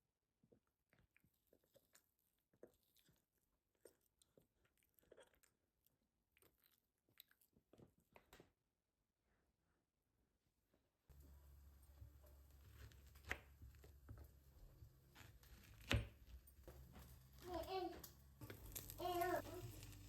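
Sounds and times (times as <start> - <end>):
small things being handled: 11.1 - 20.0.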